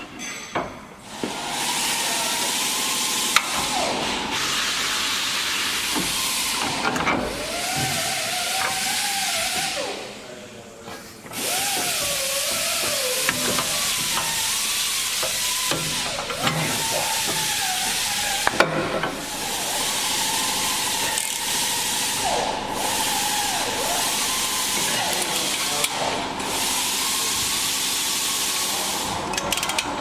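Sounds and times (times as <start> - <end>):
pneumatic tool air hiss and whine: 1.0 - 10.2, 11.3 - 29.8.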